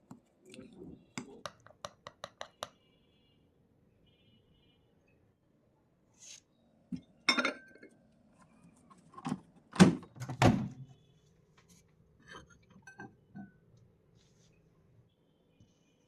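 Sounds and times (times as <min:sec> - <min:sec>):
kitchenware clinks and knocks: 0:07.3 - 0:07.9, 0:12.3 - 0:13.5.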